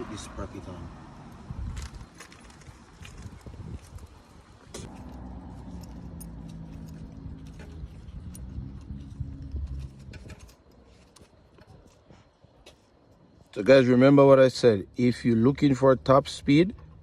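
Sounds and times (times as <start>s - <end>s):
low motor hum: 4.8s - 10.8s
small metal parts clinking: 4.9s - 11.3s.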